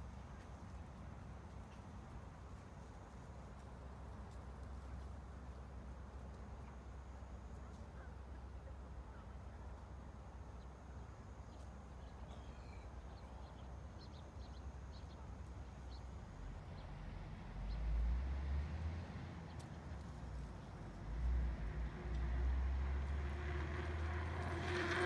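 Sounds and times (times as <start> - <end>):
low outdoor rumble: 0.0 - 25.0
faint high bird chirps: 11.5 - 16.1.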